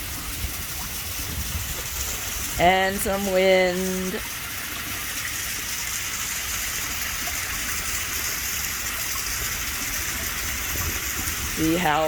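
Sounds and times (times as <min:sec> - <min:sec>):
low wind rumble: 0:00.0 - 0:03.2.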